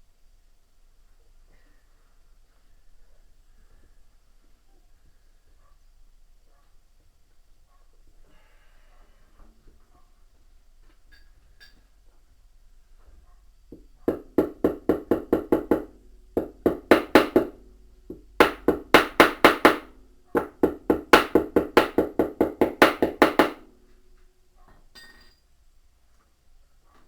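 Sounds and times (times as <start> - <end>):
hammer blows on metal: 13.7 - 24.0.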